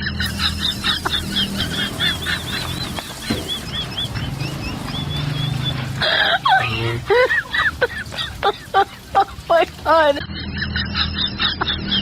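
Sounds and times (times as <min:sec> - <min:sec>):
bird chirping rapidly: 0:00.0 - 0:07.0.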